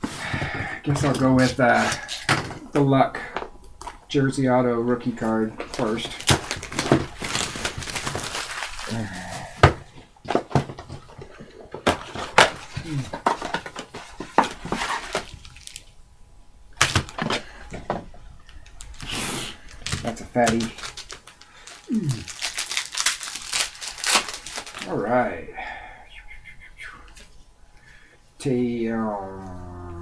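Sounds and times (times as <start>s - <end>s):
card packaging clicks and rustles: 5.0s - 15.9s, 16.8s - 25.0s
murmured voice sounds: 21.9s - 22.3s, 28.9s - 30.0s.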